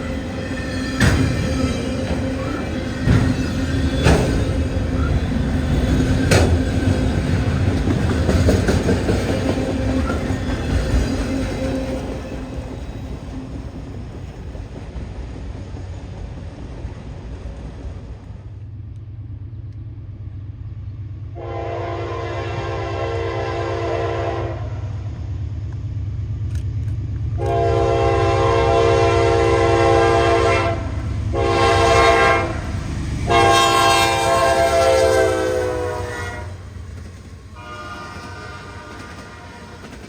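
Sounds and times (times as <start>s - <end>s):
low rumble of train engine: 0.0s - 40.0s
locomotive air horn blasts: 21.4s - 24.8s, 27.4s - 32.7s, 33.3s - 36.6s, 37.6s - 39.9s.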